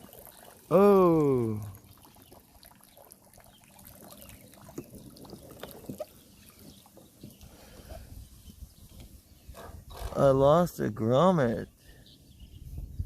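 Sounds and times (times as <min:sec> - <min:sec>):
water trickling and dripping: 0:00.0 - 0:09.2.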